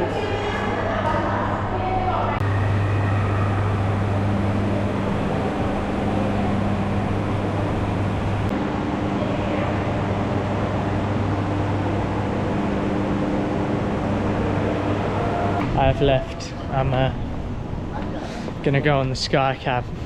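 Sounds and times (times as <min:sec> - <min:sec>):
low mechanical hum: 0:00.0 - 0:20.0
even rushing noise: 0:02.4 - 0:17.9.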